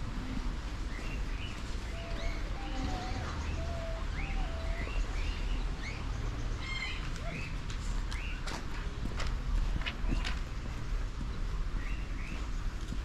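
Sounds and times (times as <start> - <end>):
birds chirping: 0.8 - 7.6, 11.7 - 12.8.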